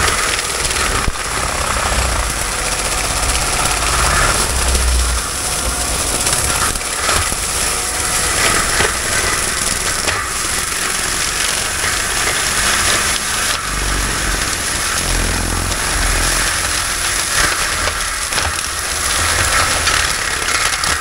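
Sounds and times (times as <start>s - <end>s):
diesel engine running under load: 0.0s - 21.0s.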